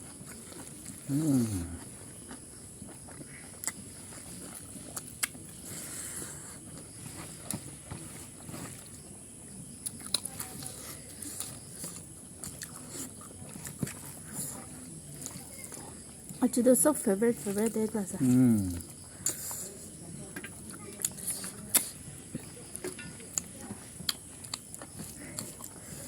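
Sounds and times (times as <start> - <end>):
chewing and mouth smacks: 0.0 - 5.7, 9.8 - 16.4, 20.4 - 26.0.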